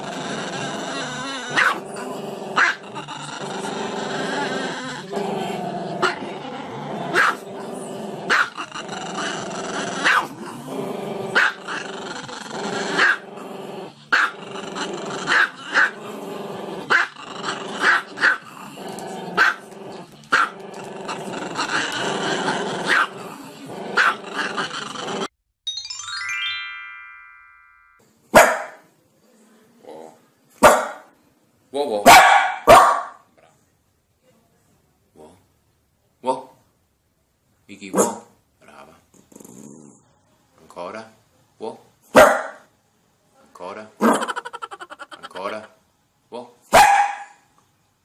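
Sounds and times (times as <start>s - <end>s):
dog growling cries: 0.0s - 25.3s, 44.0s - 45.7s
small dog barking: 1.5s - 1.8s, 7.1s - 7.4s, 8.3s - 8.5s, 10.0s - 10.3s, 19.4s - 19.6s, 22.9s - 23.1s, 24.0s - 24.2s, 28.4s - 28.8s, 30.6s - 31.1s, 32.0s - 33.3s, 37.9s - 38.3s, 42.1s - 42.7s, 46.7s - 47.5s.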